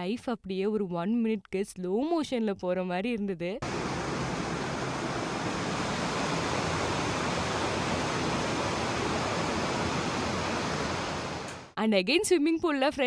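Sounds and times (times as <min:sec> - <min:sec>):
fast-flowing river rushing: 0:03.6 - 0:11.7.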